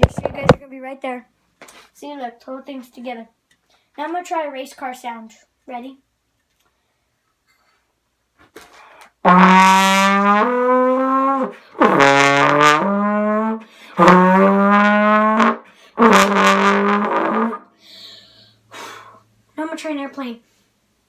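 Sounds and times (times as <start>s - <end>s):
trombone blasts: 9.2s - 17.6s.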